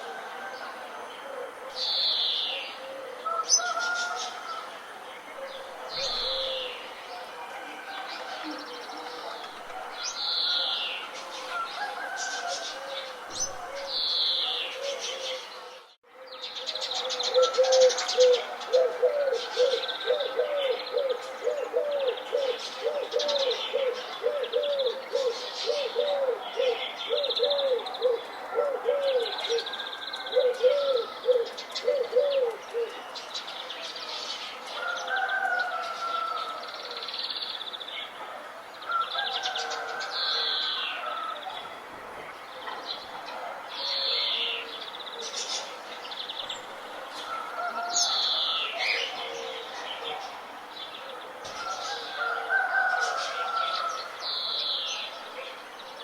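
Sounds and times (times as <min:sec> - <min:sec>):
low cooing bird call: 0:00.0 - 0:33.2
birds chirping and trilling: 0:01.1 - 0:56.0.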